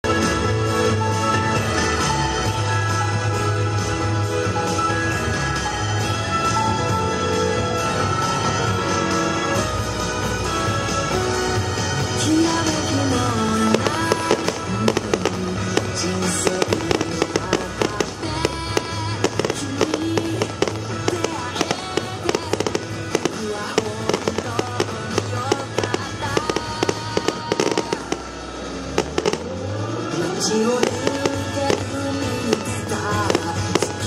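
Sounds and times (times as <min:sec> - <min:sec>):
background music: 0:00.0 - 0:34.0
fireworks popping and crackling: 0:11.6 - 0:29.5, 0:30.4 - 0:34.0.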